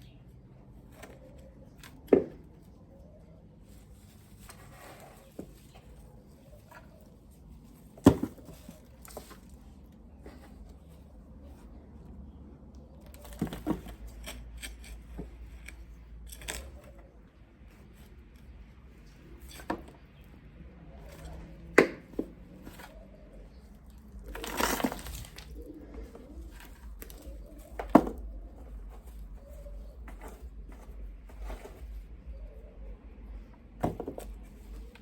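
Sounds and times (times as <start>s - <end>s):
rustling scrape: 3.5s - 12.1s, 21.0s - 35.0s
digging soil knocks and scrapes: 3.6s - 12.4s, 13.0s - 20.3s, 20.9s - 35.0s.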